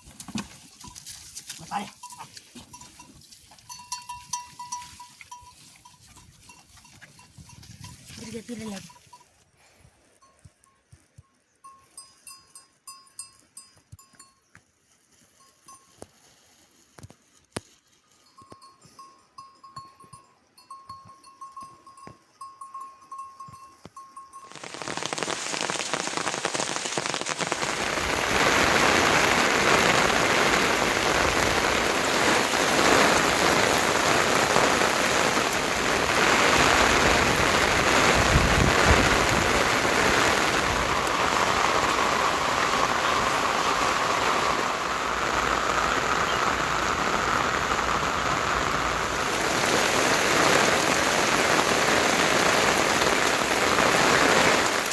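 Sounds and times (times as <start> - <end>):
heavy rain pouring: 24.5 - 54.9.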